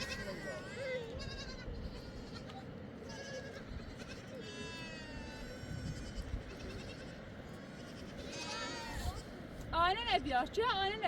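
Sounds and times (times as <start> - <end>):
goats and sheep bleating: 0.0 - 9.2
low background noise: 0.0 - 11.0.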